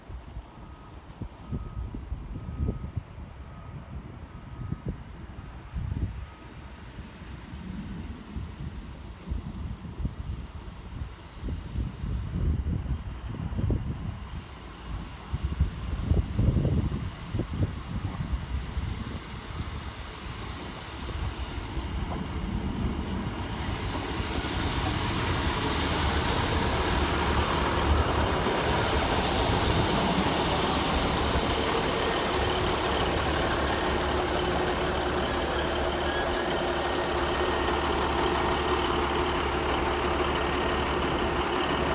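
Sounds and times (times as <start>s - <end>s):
diesel train engine and wheels: 0.0s - 41.9s
brief hisses: 36.0s - 37.2s.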